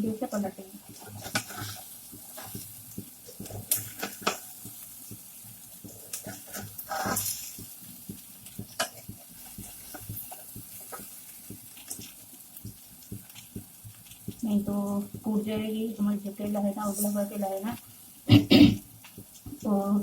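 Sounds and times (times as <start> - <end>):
banana pieces sizzling in oil: 0.0 - 20.0
spatula scraping and tapping pan: 0.4 - 15.8.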